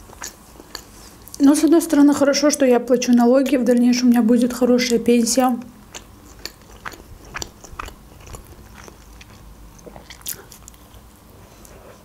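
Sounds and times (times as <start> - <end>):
chewing mouth clicks: 0.1 - 1.4, 5.8 - 11.7.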